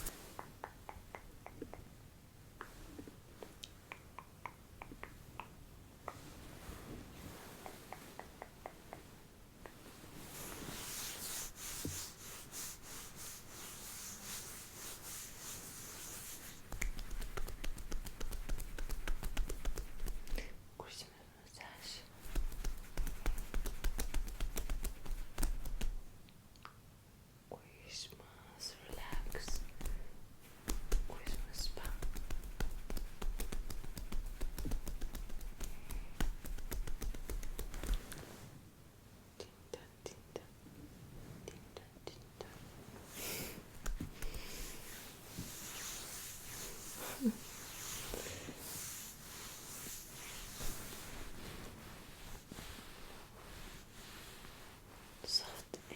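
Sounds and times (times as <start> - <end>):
close-up scratching and rustling: 10.0 - 20.4, 42.5 - 55.9.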